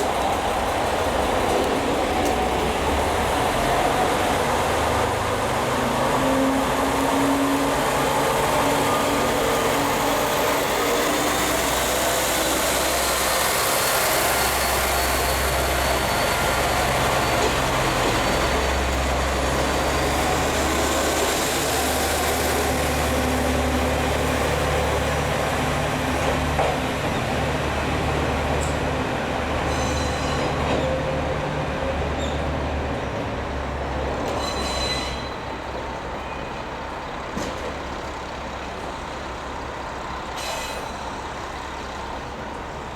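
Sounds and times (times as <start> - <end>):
train running on rails: 0.0 - 42.9
faint high wheel squeal: 10.0 - 20.4, 29.6 - 31.1, 32.2 - 32.5, 34.2 - 35.6, 40.3 - 41.8.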